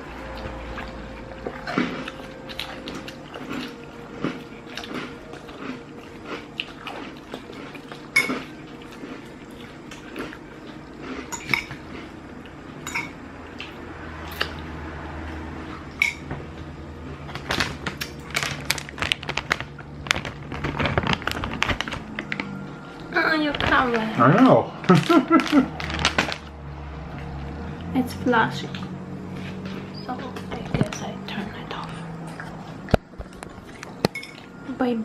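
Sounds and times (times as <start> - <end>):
cutlery clinking on dish: 11.3 - 11.8, 12.8 - 13.2, 34.0 - 34.5.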